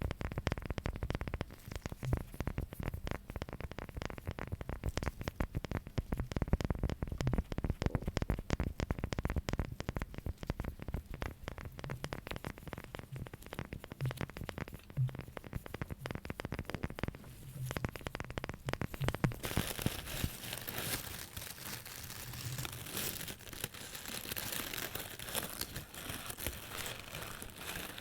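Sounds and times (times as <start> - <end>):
fingers tapping and scratching: 0.0 - 28.0.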